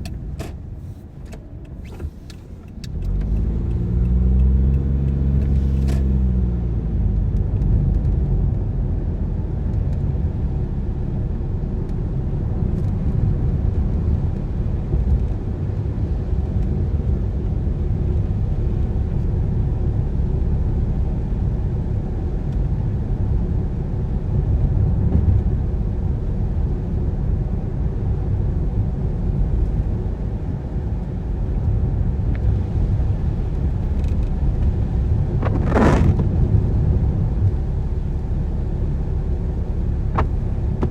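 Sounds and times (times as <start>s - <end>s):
car engine and tyre rumble: 0.0s - 40.9s.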